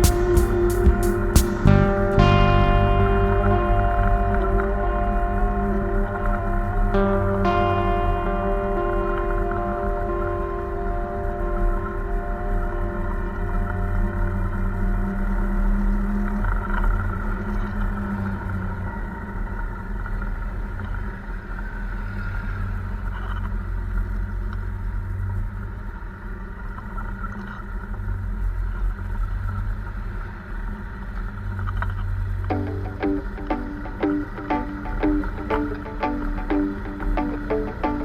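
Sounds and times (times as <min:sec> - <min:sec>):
gong-like tone ringing: 0:00.0 - 0:15.2, 0:32.5 - 0:38.0.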